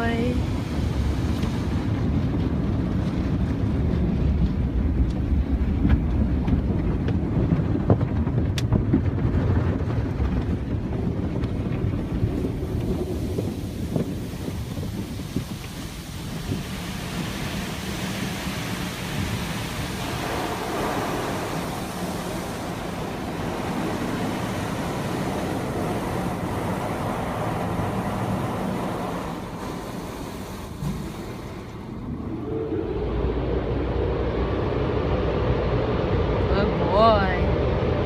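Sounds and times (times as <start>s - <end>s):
car wash spraying water: 0.0s - 33.0s
low steady drone: 15.7s - 38.0s.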